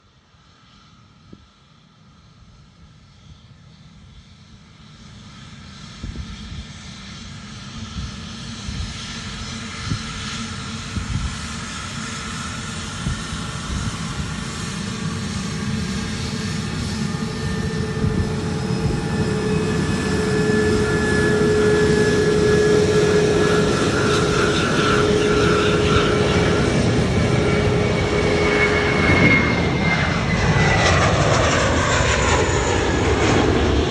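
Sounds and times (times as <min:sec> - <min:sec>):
jet engines on takeoff: 0:00.0 - 0:33.9.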